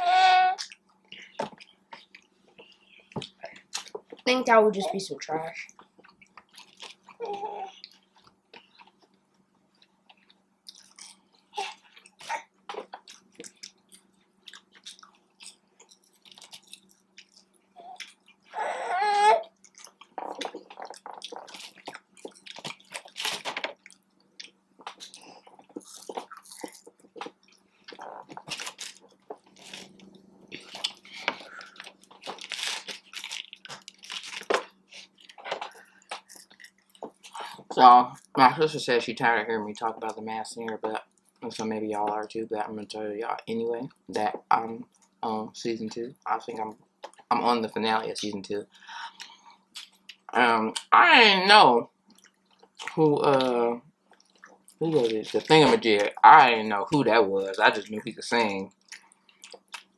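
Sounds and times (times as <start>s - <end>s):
chewing crunchy food: 0.6s - 4.3s, 5.7s - 18.6s, 19.4s - 38.4s, 49.1s - 50.9s, 52.0s - 56.2s, 57.5s - 59.9s.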